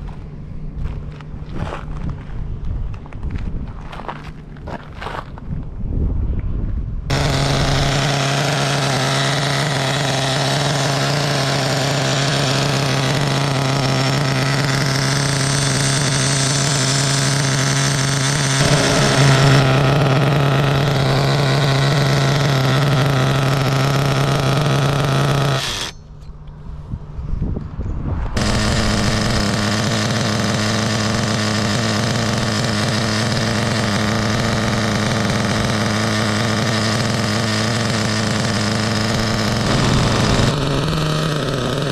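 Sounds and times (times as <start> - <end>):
small nitro engine running: 7.1 - 26.0, 28.4 - 41.9.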